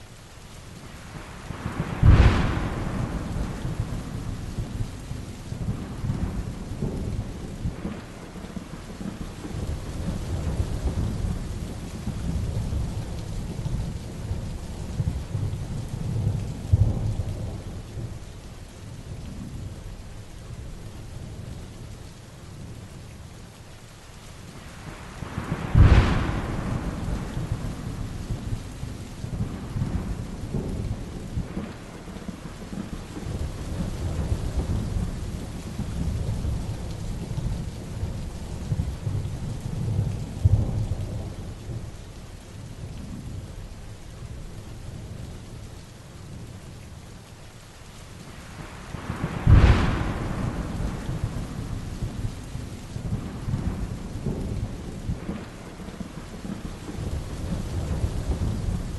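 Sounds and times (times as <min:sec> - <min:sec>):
heavy rain falling: 0:00.0 - 0:58.9
rolling thunder rumbling: 0:01.2 - 0:18.3, 0:24.8 - 0:42.0, 0:48.3 - 0:58.9
loud thunderclaps: 0:01.5 - 0:05.0, 0:25.2 - 0:41.9, 0:48.6 - 0:52.4, 0:53.0 - 0:58.9.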